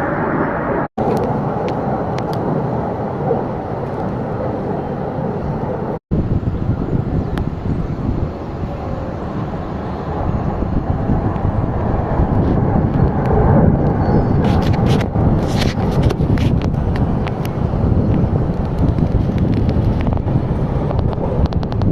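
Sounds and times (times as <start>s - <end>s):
fighter jet roaring overhead: 0.0s - 21.9s
wind buffeting microphone: 0.0s - 21.9s
crackles: 12.2s - 21.9s.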